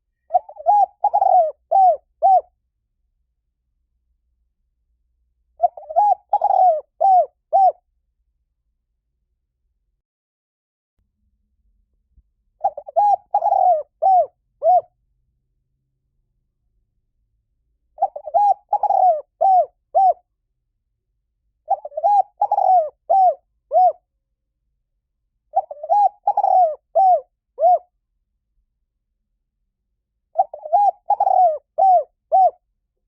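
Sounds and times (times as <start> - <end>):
dove cooing: 0.3 - 2.5, 5.6 - 7.8, 12.6 - 14.9, 18.0 - 20.2, 21.7 - 24.0, 25.5 - 27.9, 30.4 - 32.6.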